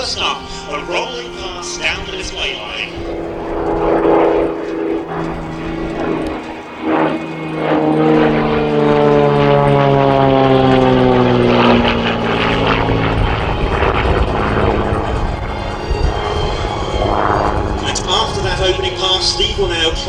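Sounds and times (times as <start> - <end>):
propeller plane passing: 0.0 - 20.0.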